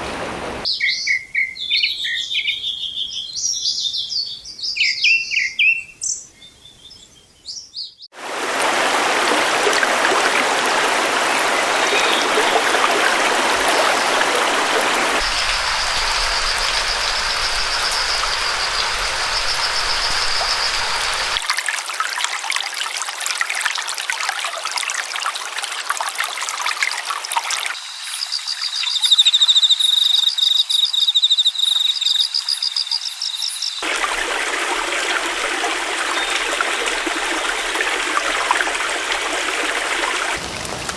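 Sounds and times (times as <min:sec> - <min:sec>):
bird chirps: 0:00.7 - 0:08.1, 0:15.2 - 0:21.4, 0:27.8 - 0:33.8
stream water rushing: 0:08.2 - 0:22.0, 0:33.8 - 0:40.9
high-pitched trilling calls: 0:15.2 - 0:21.4, 0:27.8 - 0:33.8.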